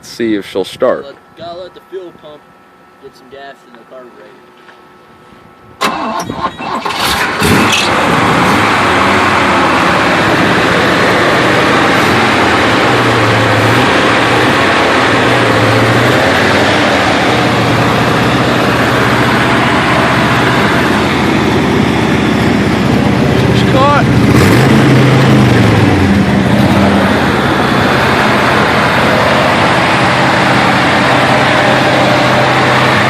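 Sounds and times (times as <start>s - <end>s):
engine cranking and starting: 5.8s - 9.5s.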